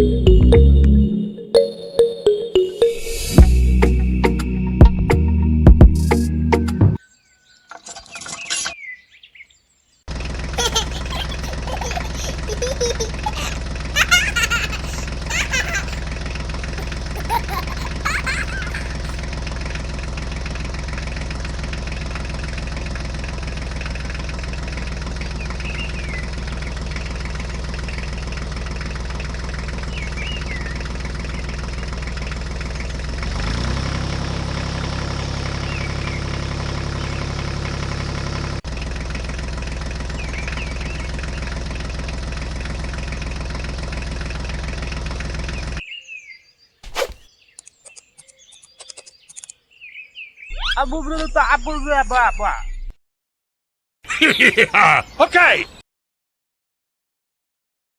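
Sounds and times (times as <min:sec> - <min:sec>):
small engine running: 0:10.1 - 0:45.8
birds chirping: 0:10.6 - 0:16.0, 0:16.6 - 0:19.2, 0:45.8 - 0:52.9.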